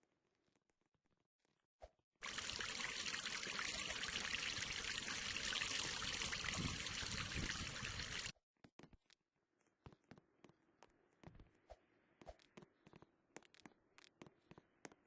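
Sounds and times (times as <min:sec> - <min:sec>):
running water rushing: 0:02.2 - 0:08.3.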